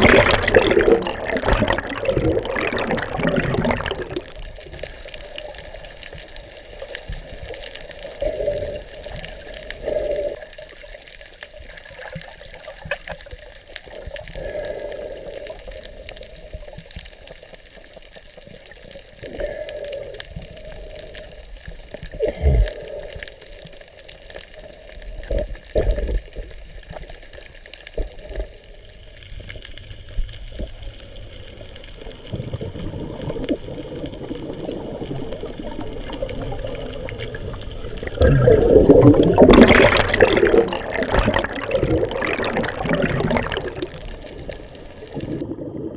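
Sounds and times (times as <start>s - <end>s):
water sloshing and splashing: 34.4s - 44.1s.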